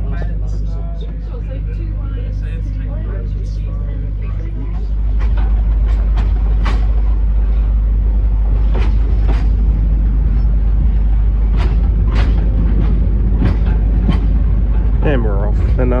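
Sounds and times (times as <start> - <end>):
train rumbling: 0.0 - 16.0
train wheels clanking and clicking: 4.6 - 16.0.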